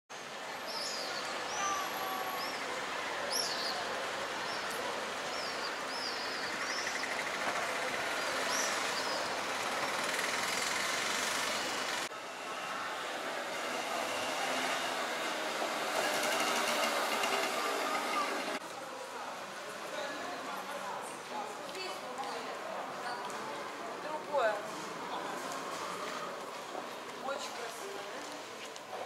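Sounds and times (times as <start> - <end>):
street ambience hiss: 0.1 - 29.0
birds chirping: 0.6 - 7.4.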